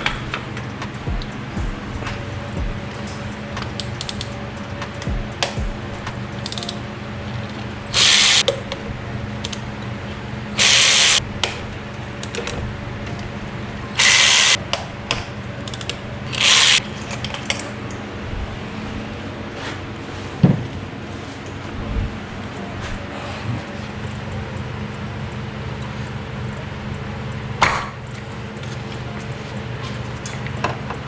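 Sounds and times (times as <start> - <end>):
ratchet wrench clicking: 0.0 - 6.9, 8.0 - 8.6, 10.6 - 11.6, 14.0 - 16.8
steady low hum: 0.0 - 31.0.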